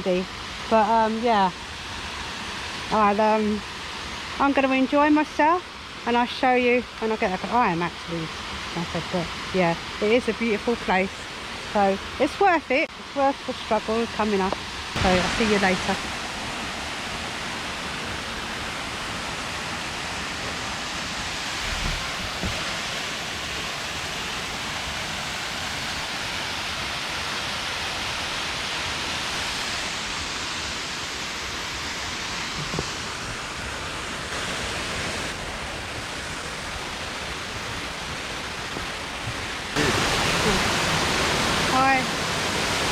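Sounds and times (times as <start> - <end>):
waterfall rushing and splashing: 0.0 - 42.9
low bumps: 21.5 - 22.8.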